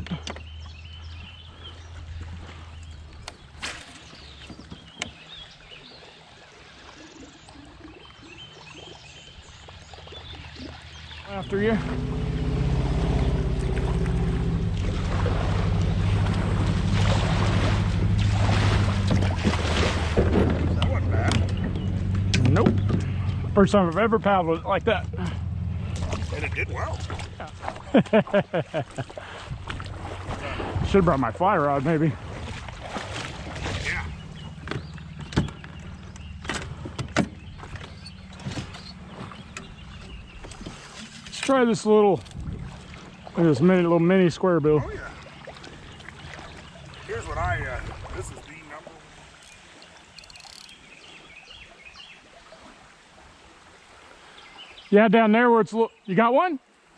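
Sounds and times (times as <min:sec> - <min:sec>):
creek current rushing: 0:10.0 - 0:27.9, 0:40.6 - 0:51.2
low hum: 0:10.4 - 0:28.0
wind rumble on microphone: 0:29.4 - 0:31.4, 0:42.2 - 0:43.1, 0:47.1 - 0:48.6.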